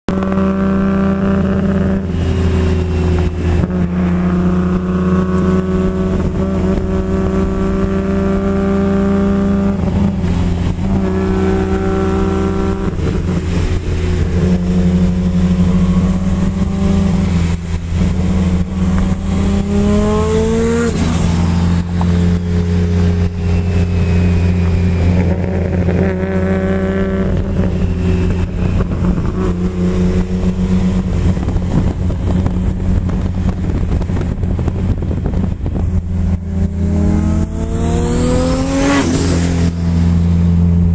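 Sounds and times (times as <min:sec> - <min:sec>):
car engine revving: 0:00.1 - 0:40.9.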